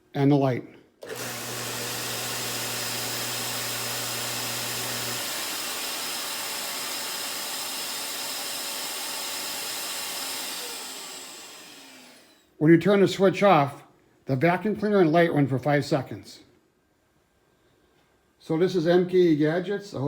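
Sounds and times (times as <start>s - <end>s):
belt grinder motor hum: 1.0s - 12.4s
vacuum cleaner rushing: 1.0s - 12.4s.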